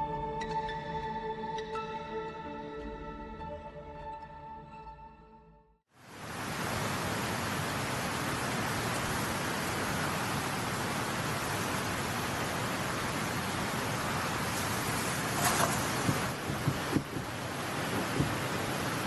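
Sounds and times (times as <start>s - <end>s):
stream rushing over rocks: 6.0s - 19.0s.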